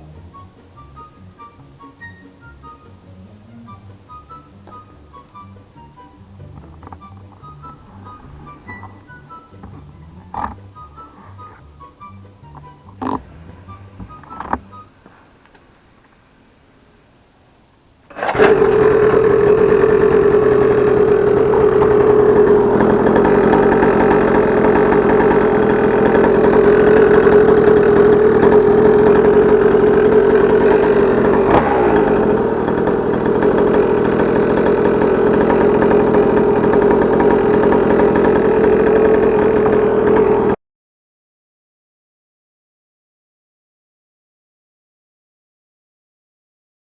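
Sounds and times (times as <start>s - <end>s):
dirt bike engine running: 0.0s - 15.2s, 18.1s - 40.6s.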